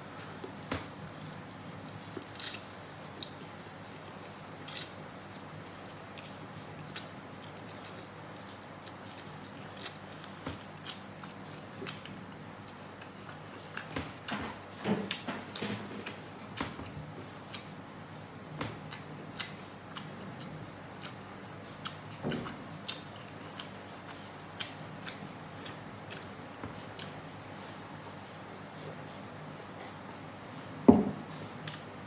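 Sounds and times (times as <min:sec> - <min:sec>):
chewing with wet mouth clicks: 0:04.6 - 0:05.0, 0:06.2 - 0:14.0, 0:18.9 - 0:26.3, 0:26.9 - 0:27.2.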